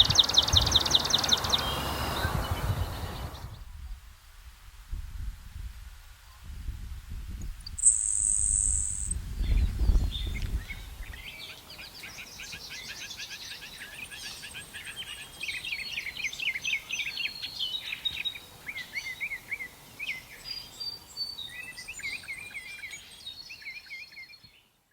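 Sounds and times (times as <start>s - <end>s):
sparrow singing trills: 0.0s - 3.6s, 7.6s - 24.7s
wind rumble on microphone: 0.0s - 11.4s
high buzzing bird note: 7.7s - 9.2s.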